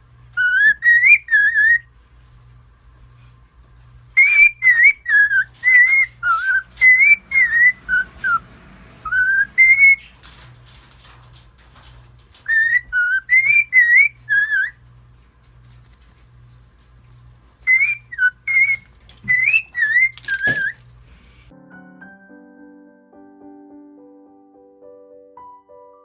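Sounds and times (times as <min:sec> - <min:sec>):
bird scratchy chatter: 0:00.3 - 0:01.9, 0:04.1 - 0:21.5
cockatiel whistling a tune: 0:00.4 - 0:01.9, 0:04.2 - 0:08.4, 0:09.0 - 0:10.1, 0:12.4 - 0:14.8, 0:17.6 - 0:20.8.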